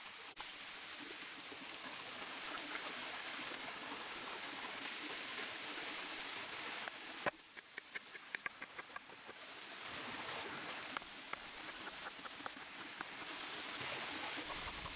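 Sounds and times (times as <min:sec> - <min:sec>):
food sizzling over campfire: 0:00.0 - 0:14.9
small crackling pops: 0:06.8 - 0:09.4, 0:10.6 - 0:13.8.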